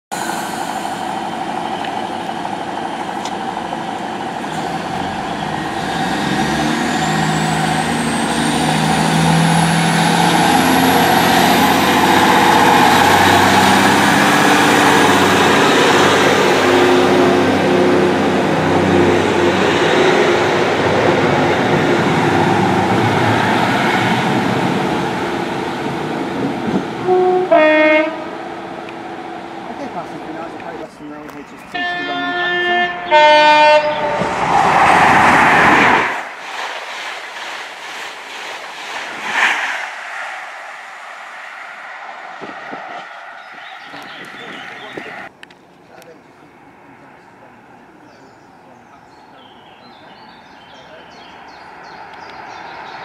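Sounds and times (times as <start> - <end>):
train wheels on rails: 0.1 - 27.0, 34.0 - 46.1
diesel train passing: 0.1 - 53.0.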